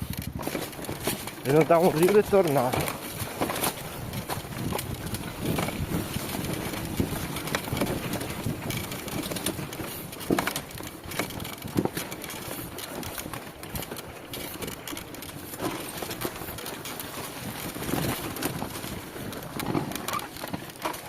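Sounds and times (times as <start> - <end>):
knocks and clatter: 0.0 - 21.0
motorcycle engine running: 0.0 - 21.0.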